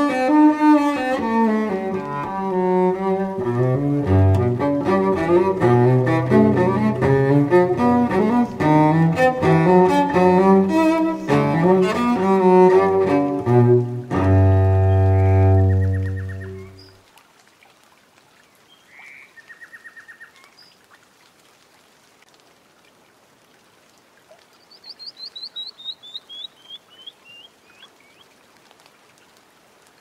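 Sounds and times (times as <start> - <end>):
birdsong with falling notes: 3.0 - 17.0, 24.7 - 28.2
bird trill: 15.6 - 16.9, 24.8 - 28.2.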